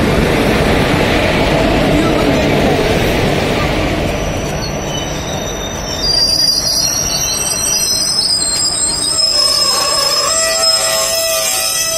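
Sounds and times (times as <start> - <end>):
train coaches rumbling past: 0.0 - 11.9
high-pitched wheel squeal: 4.2 - 11.9.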